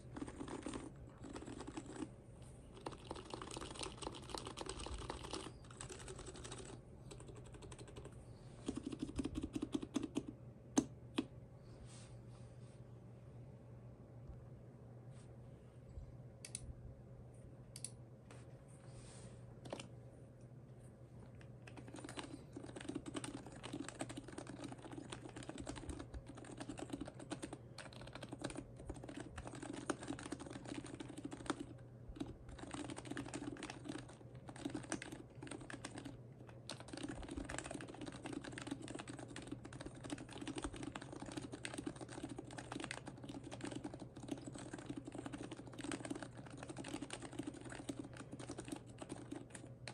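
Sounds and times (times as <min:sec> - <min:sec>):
keyboard typing: 0:00.0 - 0:02.1, 0:02.7 - 0:11.3, 0:21.6 - 0:49.9.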